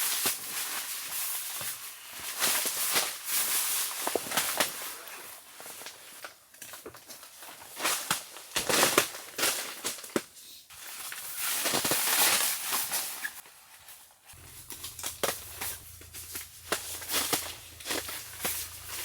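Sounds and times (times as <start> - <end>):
rustling and crunching: 0.0 - 19.0.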